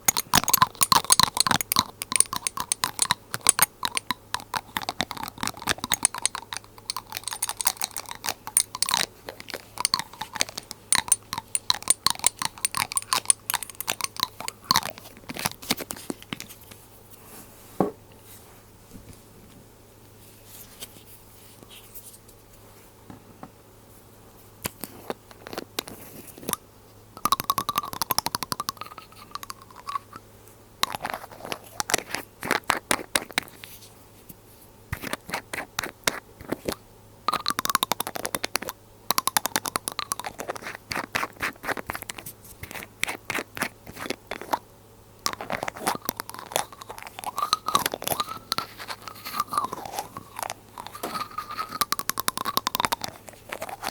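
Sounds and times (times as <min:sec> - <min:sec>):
glass bottle crackling clicks: 0:00.0 - 0:16.5, 0:25.4 - 0:26.6, 0:27.2 - 0:30.2, 0:30.8 - 0:33.4, 0:35.0 - 0:44.6, 0:45.3 - 0:53.9.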